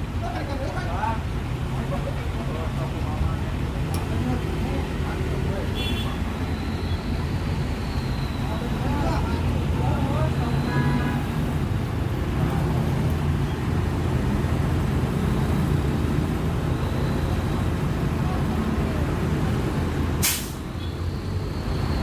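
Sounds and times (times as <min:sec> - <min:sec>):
air brake hiss: 0:20.2 - 0:20.6.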